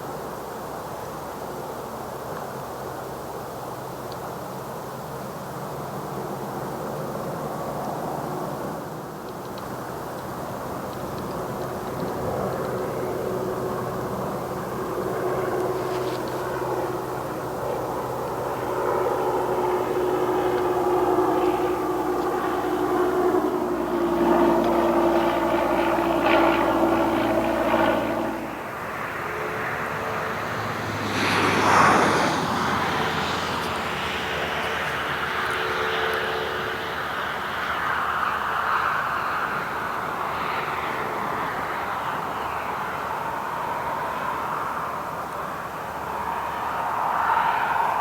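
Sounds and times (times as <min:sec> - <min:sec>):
model airplane motor humming: 0:09.4 - 0:30.4.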